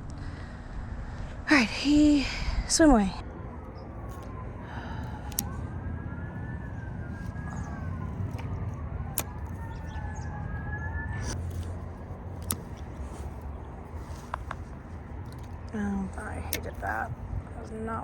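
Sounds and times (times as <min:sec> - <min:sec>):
road traffic rumble: 0:00.0 - 0:18.0
siren wailing: 0:03.2 - 0:11.8.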